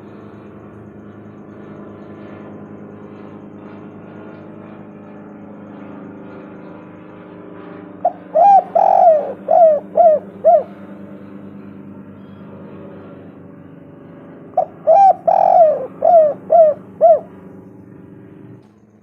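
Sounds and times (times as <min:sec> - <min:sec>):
low droning hum: 0:00.0 - 0:19.0
dove cooing: 0:08.0 - 0:11.6, 0:14.6 - 0:17.6.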